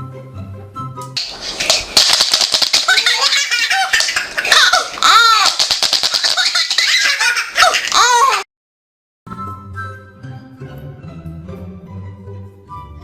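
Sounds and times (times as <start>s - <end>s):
baby laughing: 1.7s - 8.5s.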